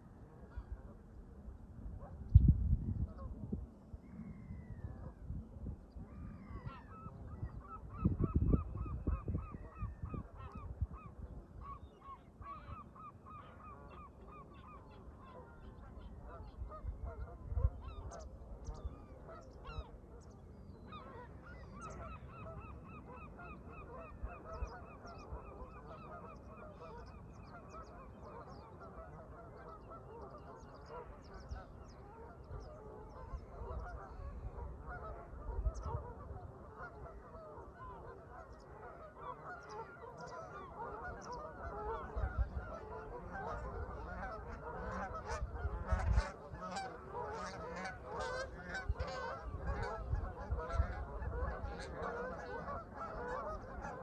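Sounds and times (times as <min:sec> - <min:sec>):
wind rumble on microphone: 0:00.0 - 0:13.1, 0:13.9 - 0:54.0
geese honking: 0:20.9 - 0:54.0.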